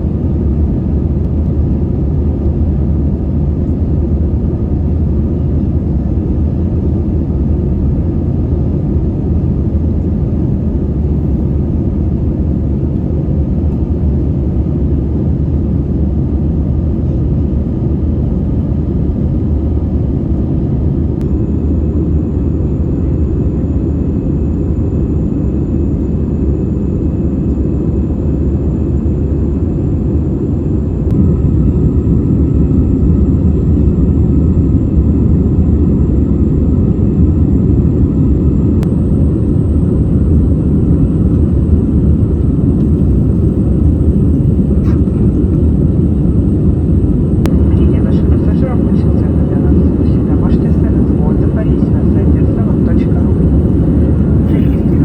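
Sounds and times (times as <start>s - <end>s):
jet engines roaring: 18.9s - 55.0s
faint steady whine: 19.0s - 55.0s.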